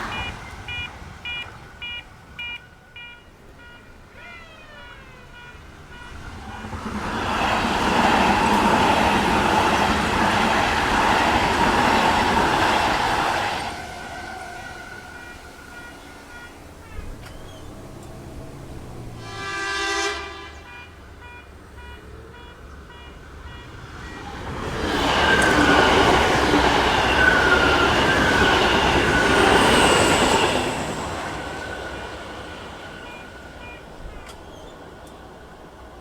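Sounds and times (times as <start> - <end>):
level crossing bell dinging: 0.0 - 6.2
train horn blast: 0.0 - 7.3, 13.1 - 34.5
wheel squealing on rails: 0.0 - 21.2, 22.8 - 36.0
train rushing past: 0.0 - 36.0.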